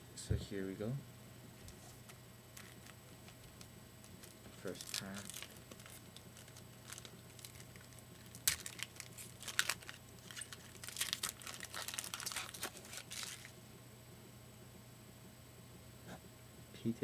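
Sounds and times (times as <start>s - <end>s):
wrapper crinkling: 1.7s - 13.6s
wrapper tearing: 2.0s - 13.5s.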